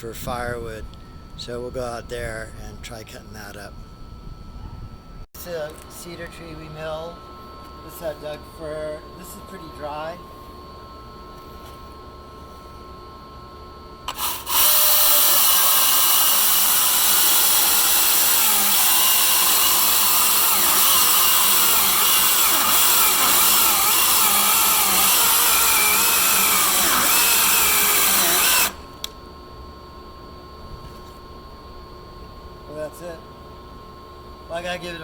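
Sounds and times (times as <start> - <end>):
electric chainsaw cutting wood: 14.1 - 29.2.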